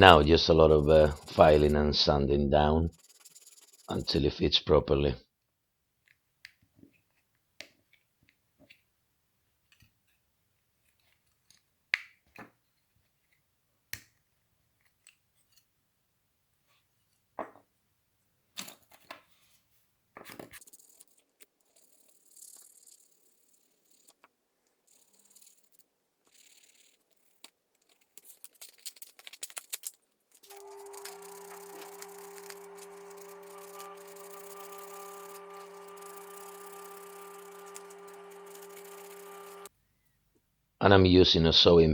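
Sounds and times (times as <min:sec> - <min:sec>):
filing plastic: 0:00.0 - 0:01.9, 0:02.9 - 0:04.2, 0:20.6 - 0:39.7.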